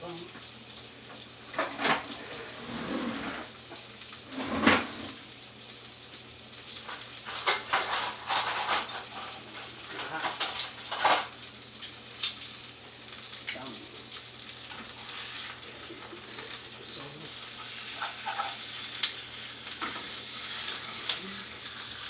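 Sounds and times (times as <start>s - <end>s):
chicken frying in hot pan: 0.0s - 2.6s, 3.4s - 22.0s
metal utensils and pans clattering: 1.5s - 3.5s, 4.3s - 5.2s, 6.8s - 11.4s, 17.6s - 18.9s, 19.7s - 21.2s.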